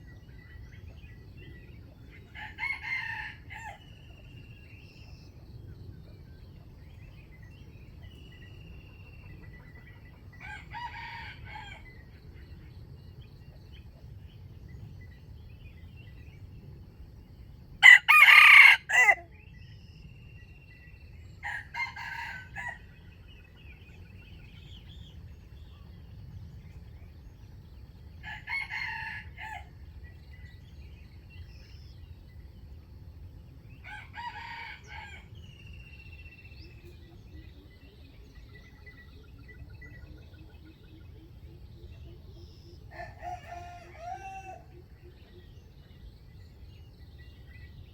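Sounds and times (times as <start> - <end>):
low background noise: 0.0 - 47.9
rooster crowing: 17.8 - 19.3, 42.9 - 44.7
small birds chirping: 29.4 - 47.9.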